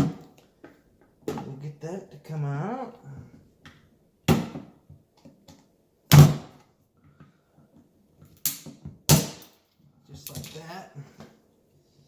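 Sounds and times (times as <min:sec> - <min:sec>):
hard knocks on garbage disposal: 0:04.3 - 0:04.7.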